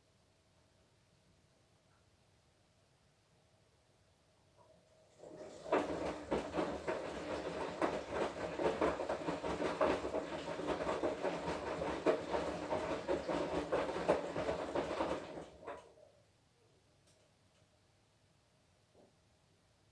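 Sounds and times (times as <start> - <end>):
washing machine drum turning: 5.2 - 15.8.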